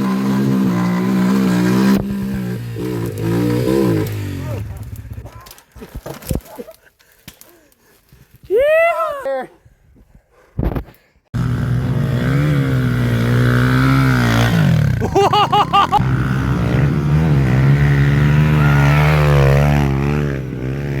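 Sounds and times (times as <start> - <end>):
pit bike engine revving: 0.0 - 5.3, 11.4 - 21.0.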